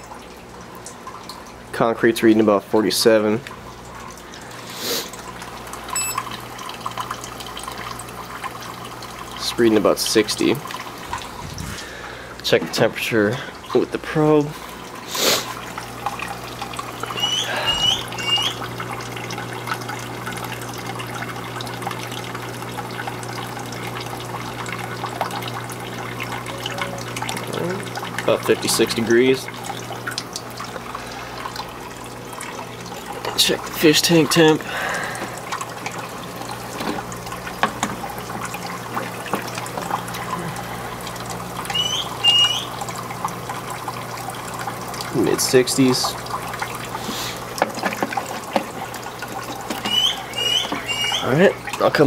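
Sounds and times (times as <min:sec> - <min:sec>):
low steady hum: 0:00.0 - 0:52.0
water trickling into tank: 0:00.0 - 0:52.0
short high chirps: 0:06.0 - 0:06.3.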